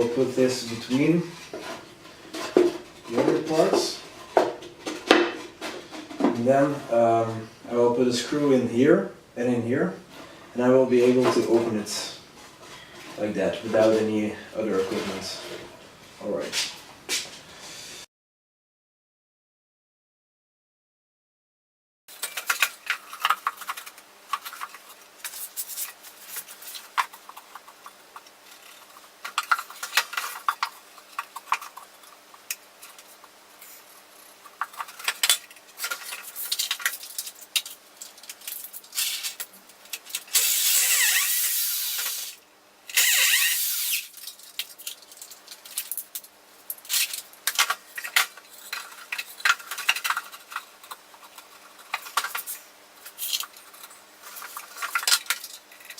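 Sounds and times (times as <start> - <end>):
wood and tools clattering: 0.8 - 6.8, 22.1 - 40.4, 44.0 - 55.9
power drill driving screws: 40.4 - 44.1.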